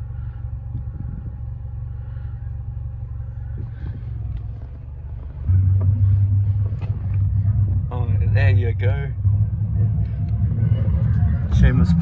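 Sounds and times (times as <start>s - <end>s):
car cabin rumble: 0.0s - 12.0s
loud low hum: 0.0s - 12.0s.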